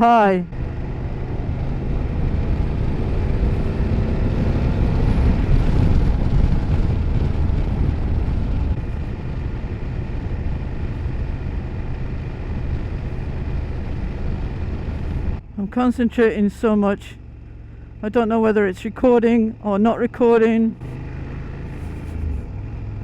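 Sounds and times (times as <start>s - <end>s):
motorcycle engine running: 0.0s - 23.0s
wind rush over microphone: 0.5s - 15.5s.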